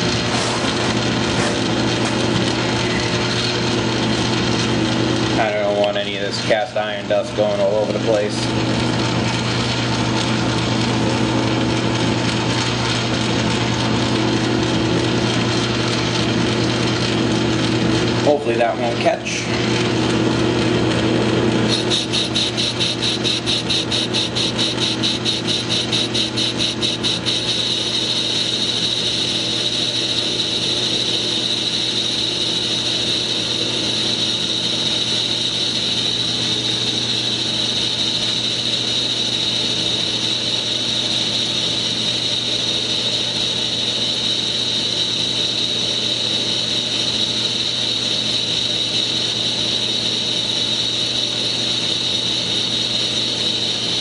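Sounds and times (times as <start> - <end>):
lathe motor hum: 0.0 - 54.0
fast regular pulsing: 19.7 - 43.4
high hiss of cutting: 21.7 - 54.0.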